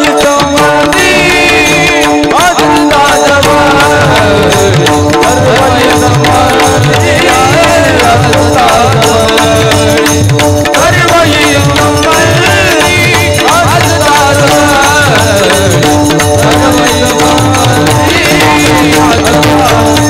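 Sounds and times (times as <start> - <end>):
hand drums beating: 0.0 - 20.0
voices singing: 0.0 - 20.0.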